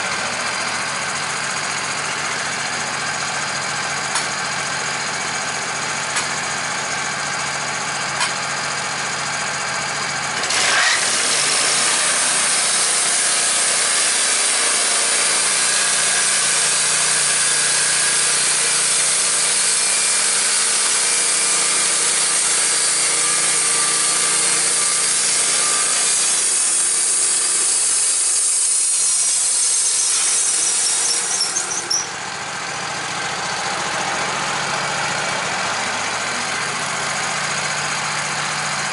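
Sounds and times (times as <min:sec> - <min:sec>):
sawmill engine running: 0:00.0 - 0:38.9
saw blade cutting log: 0:10.4 - 0:32.2.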